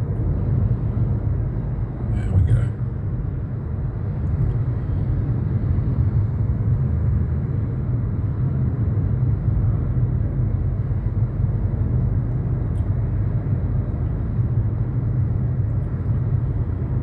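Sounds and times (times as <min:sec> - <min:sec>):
car road noise and engine rumble: 0:00.0 - 0:17.0.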